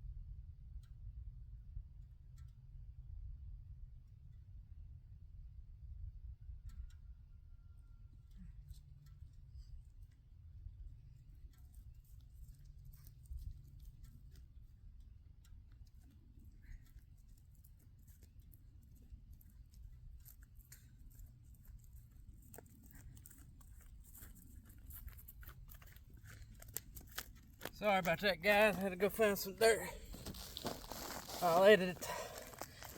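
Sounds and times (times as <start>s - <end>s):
faint low rumble: 0.0s - 27.8s
faint clicks and crackles: 8.1s - 28.2s, 30.0s - 32.9s.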